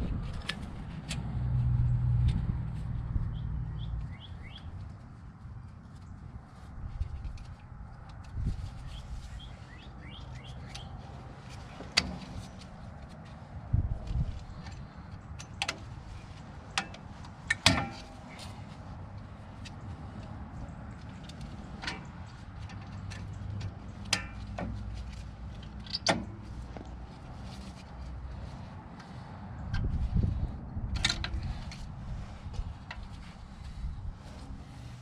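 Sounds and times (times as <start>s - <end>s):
low rumble: 0.0s - 4.0s.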